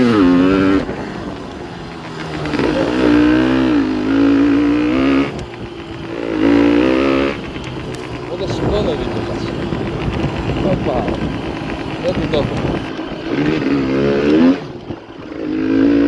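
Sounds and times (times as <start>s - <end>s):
two-stroke motorcycle engine revving: 0.0s - 16.0s.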